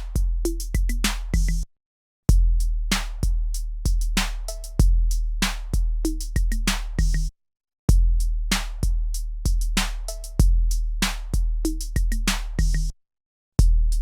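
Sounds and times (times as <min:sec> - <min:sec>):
deep kick drums: 0:00.0 - 0:01.6, 0:02.3 - 0:07.3, 0:07.9 - 0:12.9, 0:13.6 - 0:14.0
drum machine beat: 0:00.0 - 0:01.6, 0:02.3 - 0:07.3, 0:07.9 - 0:12.9
snares and hi-hats: 0:00.0 - 0:01.6, 0:02.9 - 0:07.3, 0:08.5 - 0:12.9.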